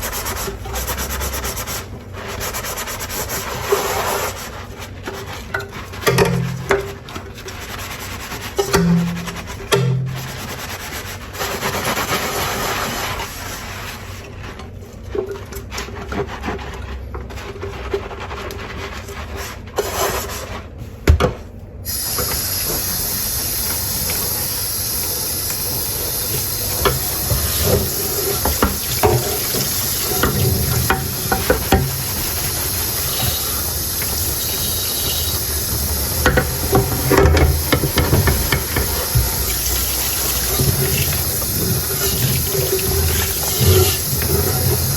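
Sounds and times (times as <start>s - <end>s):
dishes being scrubbed: 0.0s - 20.8s, 22.1s - 44.9s
tap water running: 21.9s - 44.9s.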